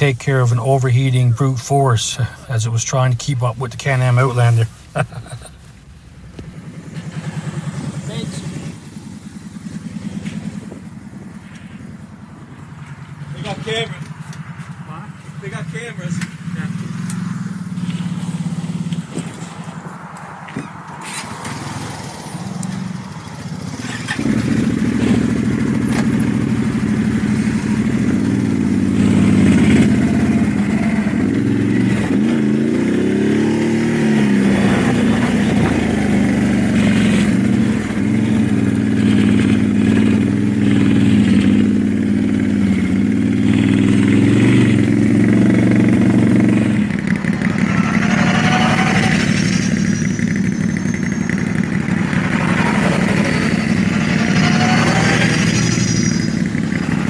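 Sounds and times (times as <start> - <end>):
atv engine running: 4.2 - 6.6, 34.8 - 57.0.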